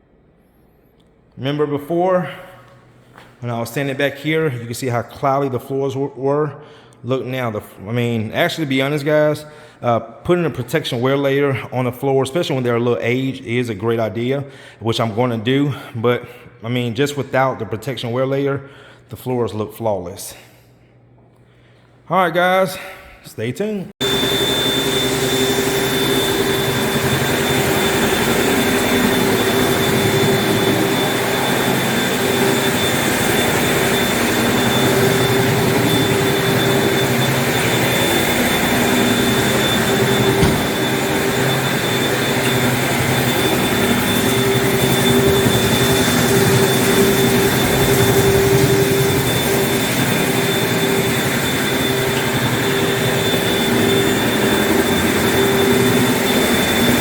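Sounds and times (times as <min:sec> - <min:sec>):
floor cleaning machine motor: 0:24.0 - 0:57.0.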